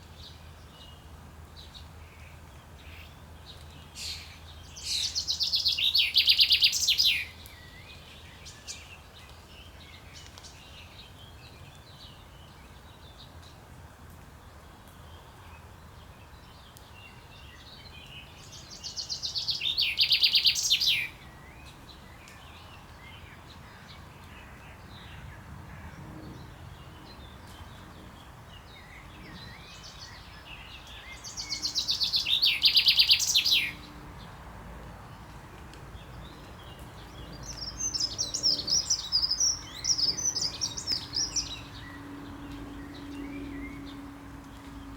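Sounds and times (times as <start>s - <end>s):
chaffinch singing: 4.0s - 9.0s, 18.1s - 21.6s, 28.8s - 33.9s, 36.6s - 44.9s.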